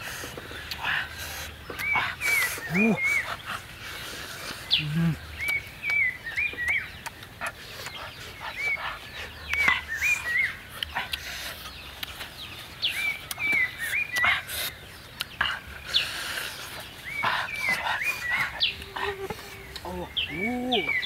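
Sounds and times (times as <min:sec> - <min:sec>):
bird whistling: 0:17.0 - 0:21.0.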